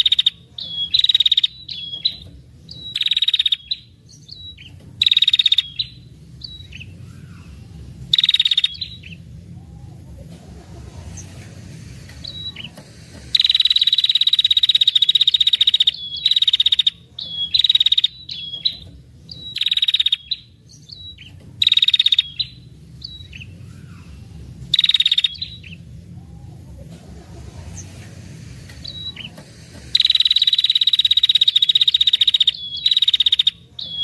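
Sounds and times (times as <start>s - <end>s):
bird chip notes: 0.0s - 34.0s
faint low hum: 0.0s - 34.0s
bird buzzing trill: 28.8s - 33.5s.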